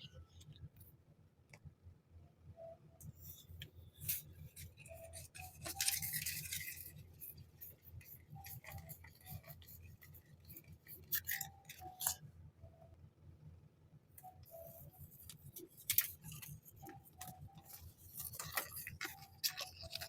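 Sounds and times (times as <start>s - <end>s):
crinkly rustle of packaging: 4.0s - 12.1s, 15.2s - 20.0s.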